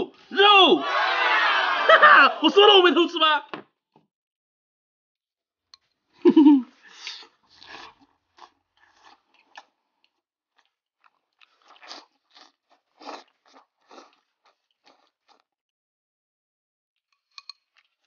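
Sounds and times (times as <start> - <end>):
crunchy chewing: 6.9 - 15.5.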